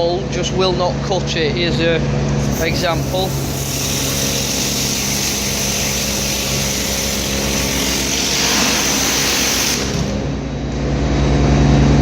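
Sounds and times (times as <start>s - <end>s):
pressure washer jet hissing: 2.4s - 10.6s
pressure washer engine running: 2.4s - 10.9s.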